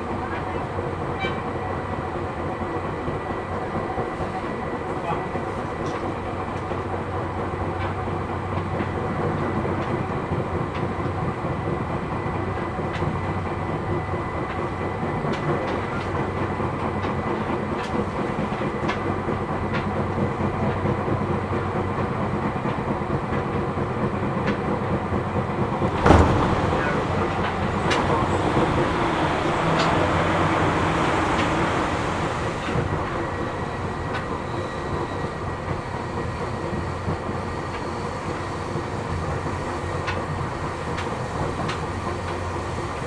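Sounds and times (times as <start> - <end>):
train running rumble: 0.0 - 43.0
wheels clicking over rail joints: 3.3 - 10.0, 12.5 - 21.2, 24.2 - 43.0
sudden loud rush: 25.8 - 32.8.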